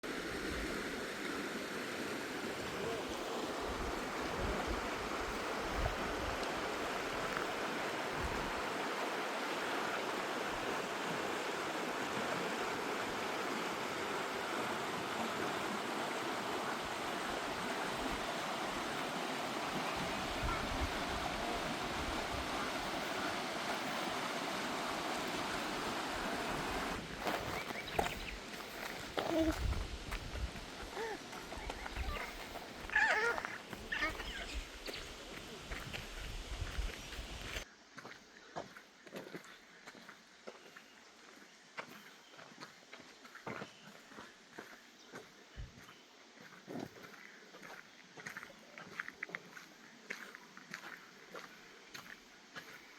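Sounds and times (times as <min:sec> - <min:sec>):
river rushing: 0:00.0 - 0:37.6
wind buffeting microphone: 0:29.4 - 0:32.6, 0:35.8 - 0:37.6.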